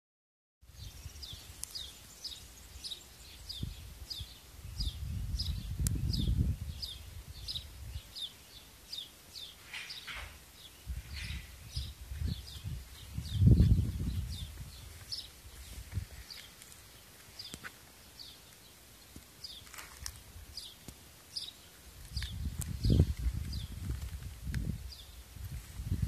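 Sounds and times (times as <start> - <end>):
bird high falling chirp: 8.2 - 15.3
low microphone rumble: 10.8 - 16.3.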